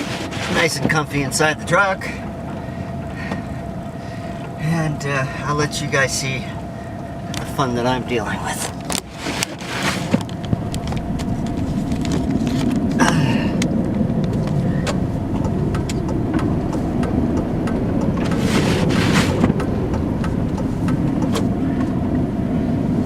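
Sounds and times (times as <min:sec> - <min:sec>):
engine and tyre rumble: 0:00.0 - 0:23.0
sharp clicks: 0:13.6 - 0:18.4.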